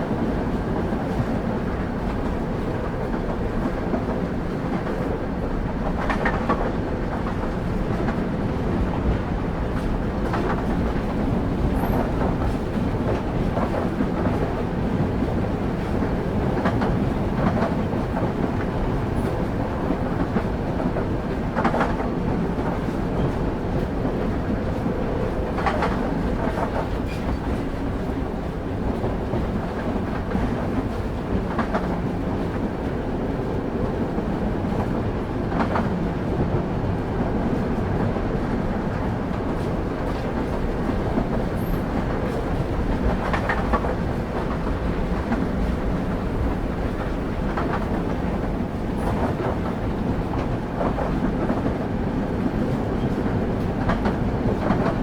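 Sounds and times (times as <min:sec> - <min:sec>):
train wheels rumbling: 0:00.0 - 0:55.0
wheels clacking on rail joints: 0:33.7 - 0:55.0.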